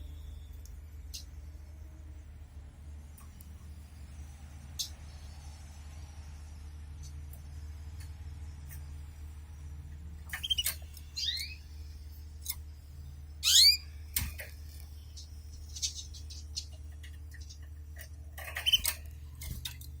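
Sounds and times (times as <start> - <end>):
steady low hum: 0.0 - 20.0
canaries chirping: 10.3 - 12.6, 13.4 - 14.0, 14.7 - 17.6.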